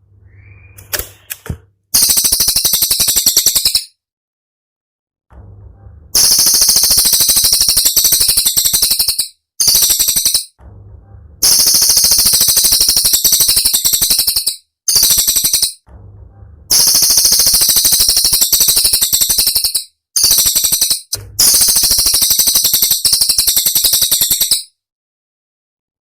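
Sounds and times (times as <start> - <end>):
songbird rattling trills: 2.0 - 3.9, 6.2 - 10.6, 11.4 - 15.8, 16.7 - 24.7.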